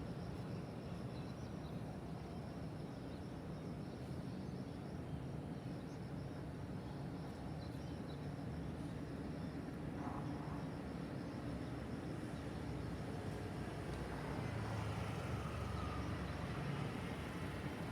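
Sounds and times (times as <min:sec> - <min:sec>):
distant city traffic hum: 0:08.7 - 0:17.9.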